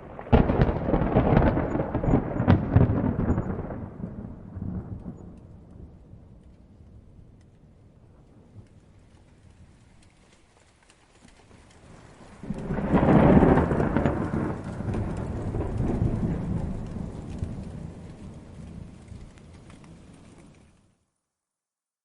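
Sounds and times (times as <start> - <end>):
thunder peal rolling: 0.0 - 9.8, 11.8 - 20.7
steady rain: 0.0 - 21.1.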